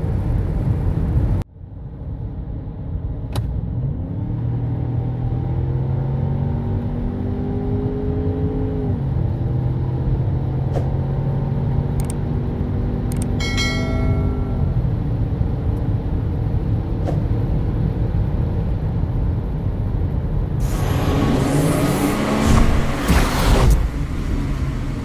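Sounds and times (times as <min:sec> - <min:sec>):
car engine accelerating: 0:03.5 - 0:25.0
brief high chime: 0:13.4 - 0:14.9.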